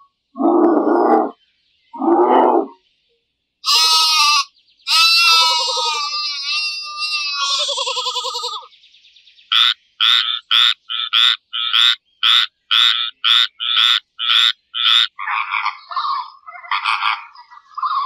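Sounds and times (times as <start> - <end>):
flamingos honking: 3.6 - 8.5, 9.5 - 18.0
sheep bleating: 3.6 - 8.7
tree frog croaking: 9.5 - 17.4.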